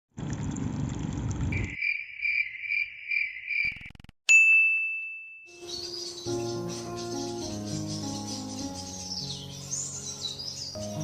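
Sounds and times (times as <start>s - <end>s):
bell-like ding: 4.3s - 5.7s.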